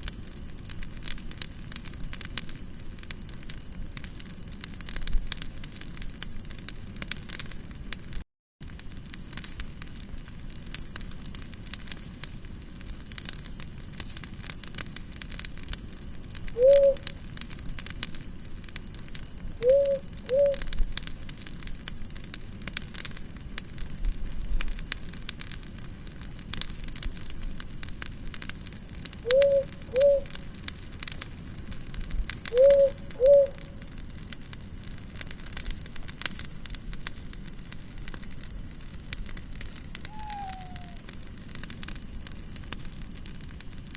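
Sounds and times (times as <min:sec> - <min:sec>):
campfire crackling and popping: 0:00.0 - 0:43.9
cricket chirping: 0:11.6 - 0:12.6, 0:14.0 - 0:14.8, 0:25.2 - 0:26.8, 0:29.3 - 0:30.3, 0:32.6 - 0:33.6, 0:40.1 - 0:41.0
short low calls: 0:40.1 - 0:41.0.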